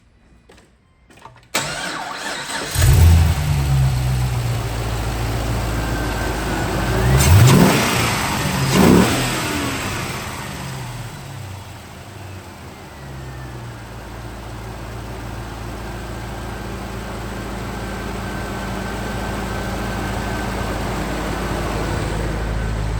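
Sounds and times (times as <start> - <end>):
engine revving: 1.6 - 12.0
car engine idling: 1.6 - 22.9.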